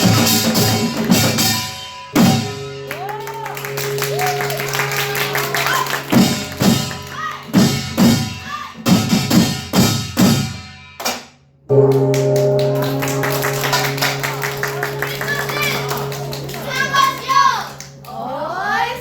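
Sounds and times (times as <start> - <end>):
drums and hand gongs: 0.0 - 18.1
faint children's voices: 14.7 - 19.0.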